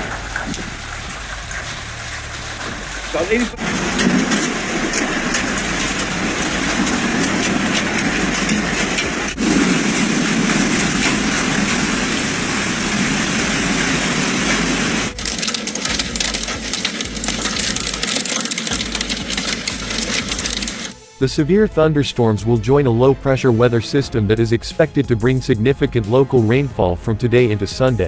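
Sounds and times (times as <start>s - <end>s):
hail and heavy rain pelting: 0.0s - 21.0s
hailstone strikes clicking: 9.3s - 21.0s.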